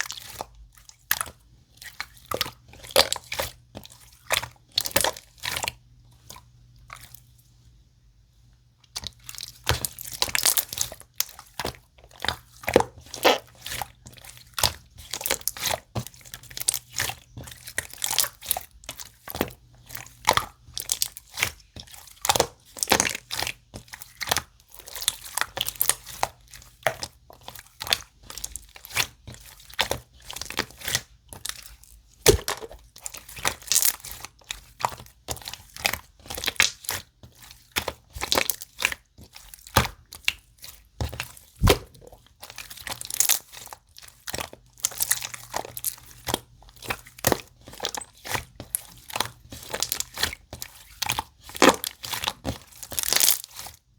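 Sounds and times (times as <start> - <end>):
loud slime pops: 41.6 - 42.0
slime squeezed by hand crackling: 41.6 - 42.1.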